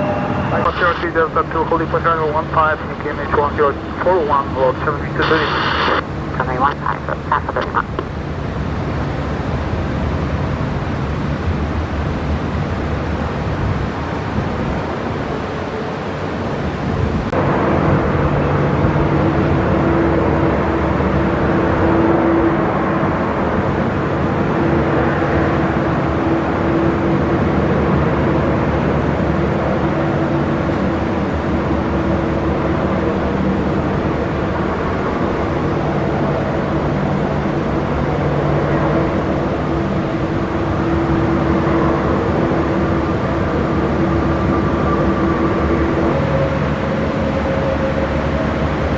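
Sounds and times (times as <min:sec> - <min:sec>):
steady low hum: 0:00.0 - 0:15.6
engine rumbling: 0:00.0 - 0:48.9.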